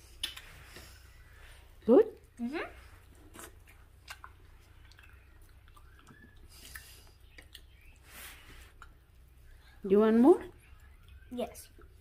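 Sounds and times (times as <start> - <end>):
faint chewing: 0.0 - 9.8
soft breaths or rustles: 7.8 - 9.8.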